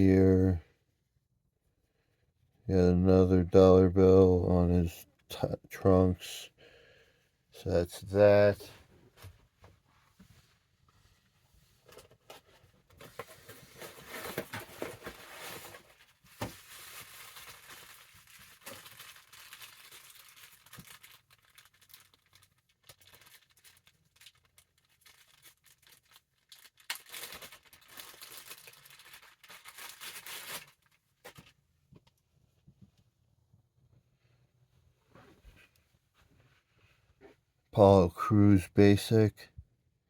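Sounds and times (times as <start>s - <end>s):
packaging tearing and crinkling: 13.0s - 31.5s.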